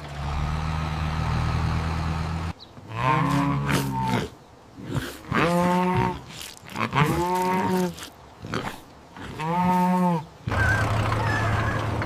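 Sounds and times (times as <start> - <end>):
low engine hum: 0.0 - 2.7.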